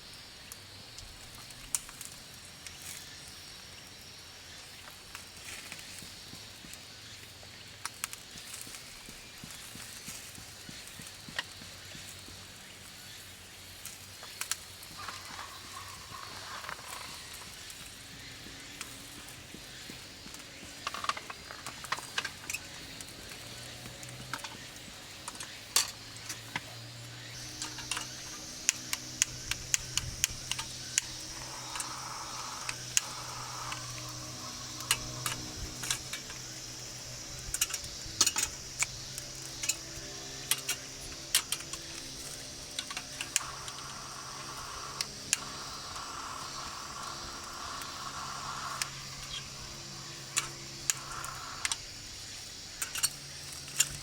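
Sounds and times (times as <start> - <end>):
meat sizzling over campfire: 0.1 - 54.0
sharp clicks and clinks: 27.4 - 51.9, 52.7 - 54.0.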